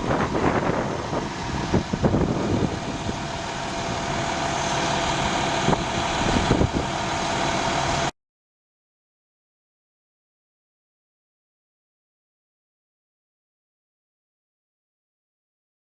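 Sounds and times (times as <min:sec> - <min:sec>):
fire engine running: 0:00.0 - 0:08.1.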